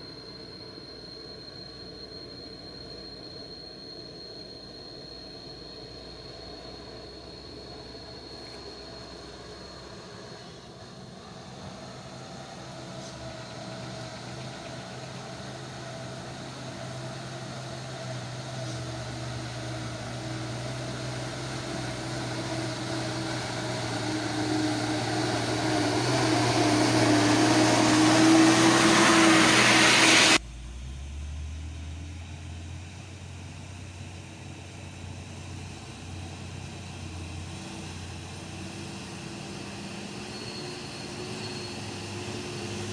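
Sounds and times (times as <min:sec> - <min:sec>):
diesel truck engine climbing: 0:00.0 - 0:42.9.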